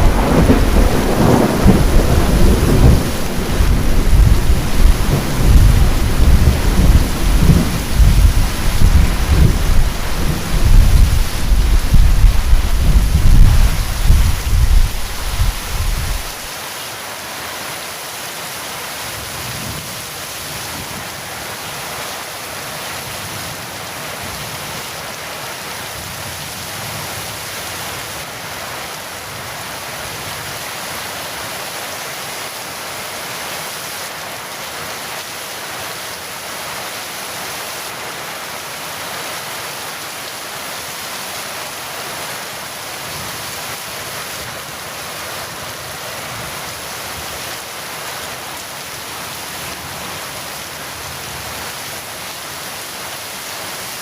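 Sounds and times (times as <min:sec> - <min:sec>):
thunder rumble: 0:00.0 - 0:16.5
heavy rain: 0:00.0 - 0:54.0.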